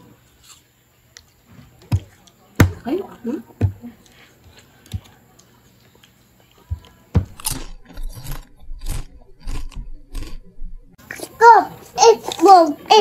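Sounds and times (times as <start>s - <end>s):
food crunching: 5.4s - 10.6s.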